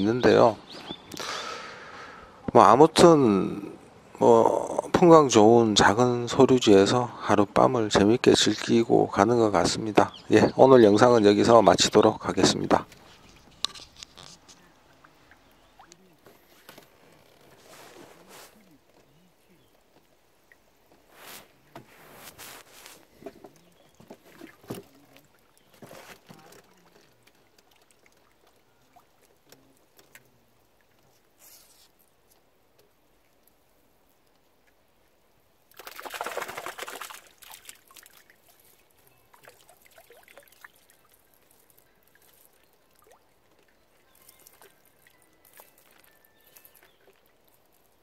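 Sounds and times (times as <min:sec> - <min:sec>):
handling clicks and rustles: 0:12.8 - 0:15.0
water pouring: 0:35.7 - 0:48.0.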